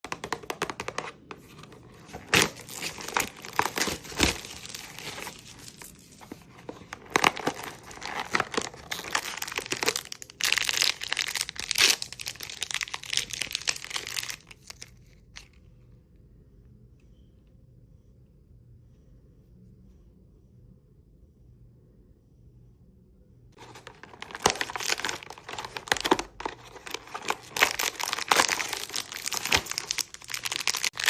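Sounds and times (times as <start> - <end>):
packaging tearing and crinkling: 2.0 - 15.5, 23.6 - 31.0.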